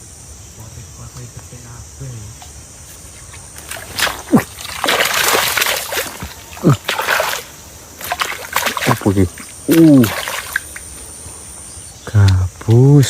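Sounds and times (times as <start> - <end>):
fish thrashing water splashing: 3.6 - 11.0.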